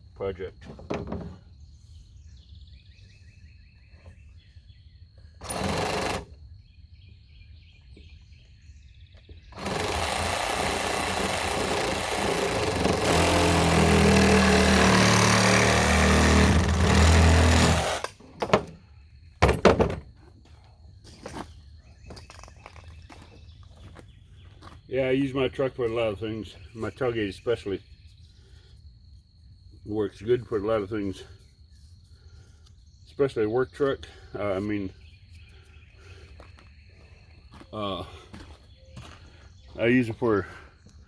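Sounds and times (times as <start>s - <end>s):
power tool cutting pipe: 5.4s - 6.3s, 9.6s - 18.7s.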